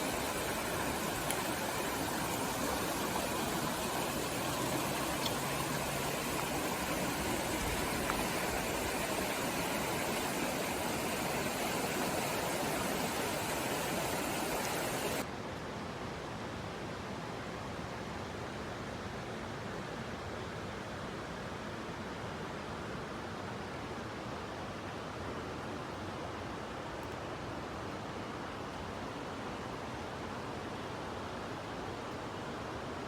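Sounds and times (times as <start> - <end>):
floodwater rushing: 0.0 - 15.2.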